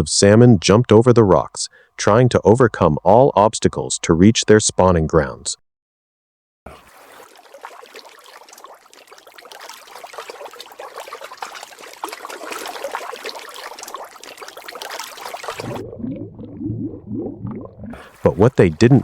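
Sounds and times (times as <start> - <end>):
water splashing over rocks: 6.7 - 16.0.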